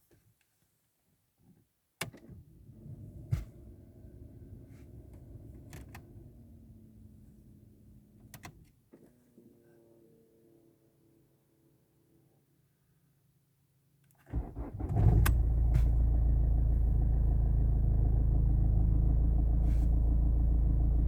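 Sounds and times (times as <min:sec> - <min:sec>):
car engine starting and rumbling: 0:02.6 - 0:08.4, 0:14.3 - 0:21.0
starter motor click: 0:14.2 - 0:16.0.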